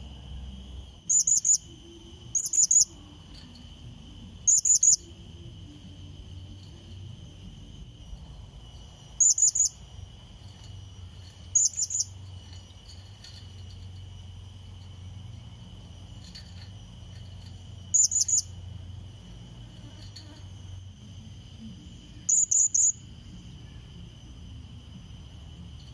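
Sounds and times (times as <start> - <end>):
high insect-like drone: 0.0 - 25.9
parrot high chirps: 22.3 - 23.0.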